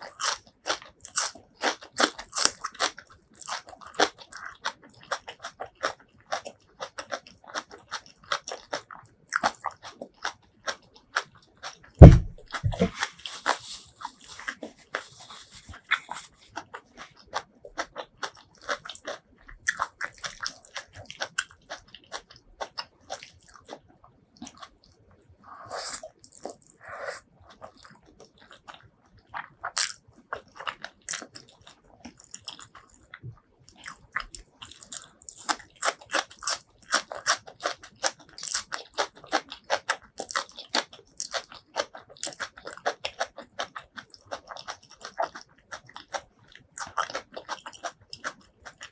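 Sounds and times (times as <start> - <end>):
person chewing crunchy food: 0.0 - 48.9
loud low thump: 12.0 - 12.9.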